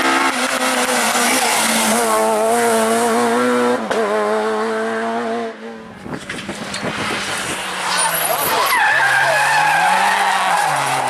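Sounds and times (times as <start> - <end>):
rally car engine revving: 0.0 - 11.0
exhaust pops and crackles: 6.0 - 7.6.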